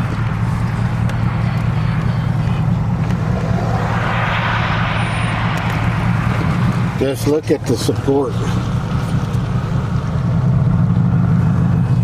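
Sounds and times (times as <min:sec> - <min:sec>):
car engine rumble: 0:00.0 - 0:12.0
road noise: 0:00.0 - 0:12.0
rushing sound: 0:02.3 - 0:08.9.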